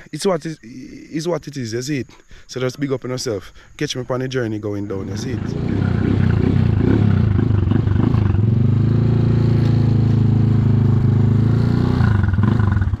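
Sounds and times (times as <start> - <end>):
motorcycle engine running: 5.2 - 13.0.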